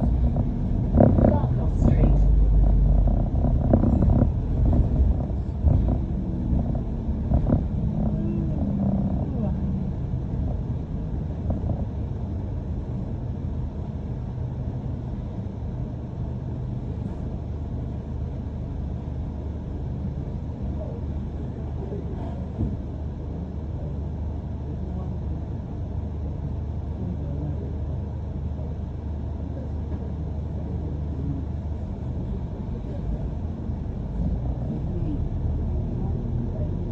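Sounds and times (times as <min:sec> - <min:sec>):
bus engine and road rumble: 0:00.0 - 0:36.9.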